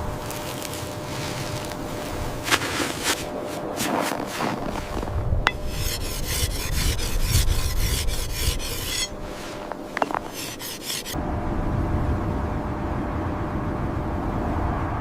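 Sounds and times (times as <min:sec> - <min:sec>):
rapid rasping strokes: 0:01.2 - 0:11.2.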